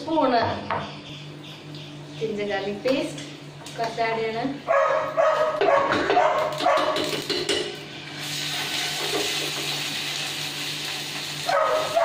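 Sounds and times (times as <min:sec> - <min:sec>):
dog barking: 0:04.7 - 0:07.0, 0:11.4 - 0:12.0
paste sizzling in hot oil: 0:08.1 - 0:12.0.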